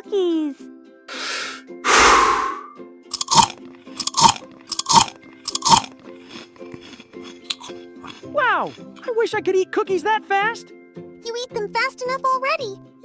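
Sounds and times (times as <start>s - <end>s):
cartoon swishing sounds: 1.1s - 5.8s
crunching chomps: 1.9s - 9.0s.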